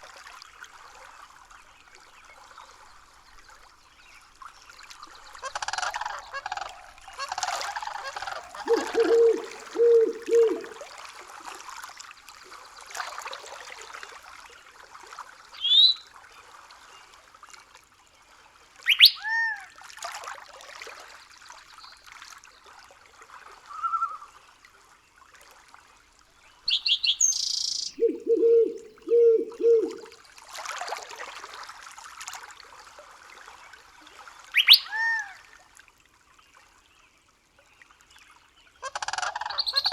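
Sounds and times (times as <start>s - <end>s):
trickling water: 0.0s - 16.6s, 26.6s - 36.1s
bird low calls: 5.4s - 10.9s, 26.7s - 30.2s
bird chirps and whistles: 18.9s - 19.2s, 26.7s - 30.0s, 34.6s - 35.0s.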